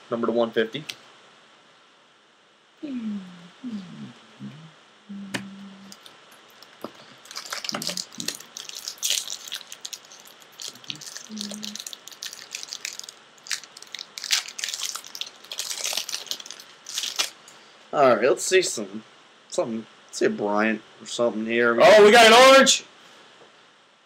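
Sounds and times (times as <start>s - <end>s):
foil wrapper crinkling: 5.9s - 17.5s.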